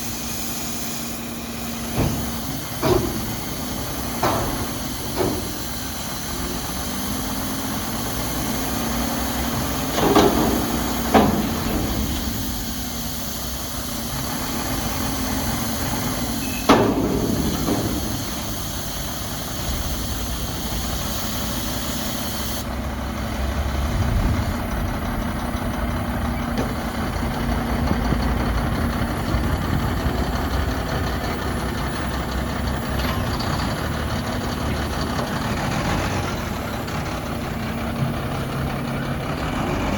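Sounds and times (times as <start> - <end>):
diesel truck engine running: 0.0 - 39.9
sharp metal bangs: 1.0 - 19.5.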